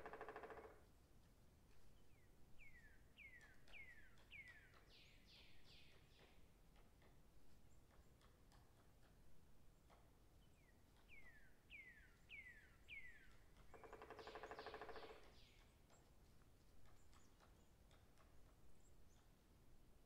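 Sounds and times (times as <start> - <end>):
bird rattling trill: 0.0 - 0.8, 13.7 - 15.6.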